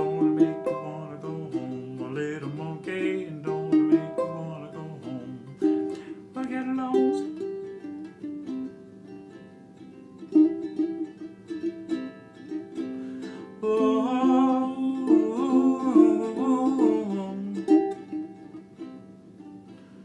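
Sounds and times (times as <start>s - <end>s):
bending held melody line: 0.0s - 8.8s
ukulele playing blues: 0.0s - 20.0s.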